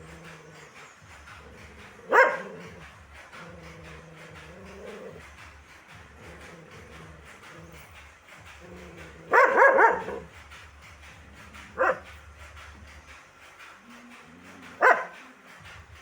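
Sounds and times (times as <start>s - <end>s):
dog barking: 1.6s - 5.2s, 9.0s - 10.3s, 11.6s - 12.2s, 14.7s - 15.3s.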